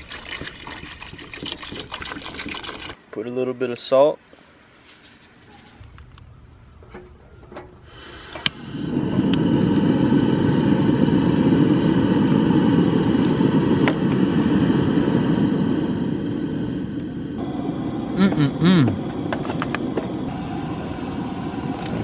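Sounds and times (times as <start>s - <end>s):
gas burner rushing: 7.8s - 22.0s
gas burner ignition click: 8.2s - 8.6s.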